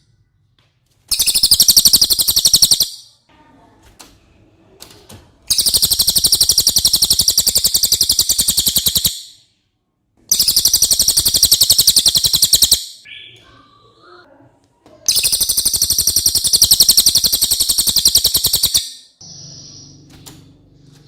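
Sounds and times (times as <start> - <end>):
bird high-pitched trills: 1.1 - 3.1, 5.5 - 9.4, 10.3 - 13.6, 15.1 - 20.1.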